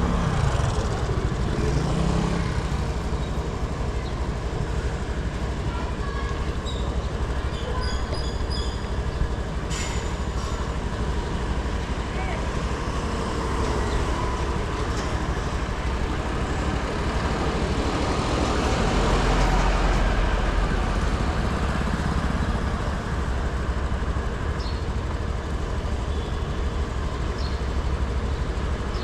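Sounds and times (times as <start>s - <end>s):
scooter engine running: 0.0s - 19.2s
road and wind noise: 0.0s - 29.0s.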